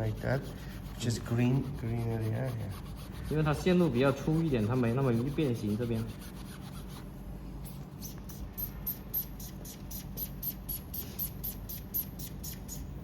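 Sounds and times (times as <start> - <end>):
sponge rubbing with faint squeaks: 0.0 - 7.1.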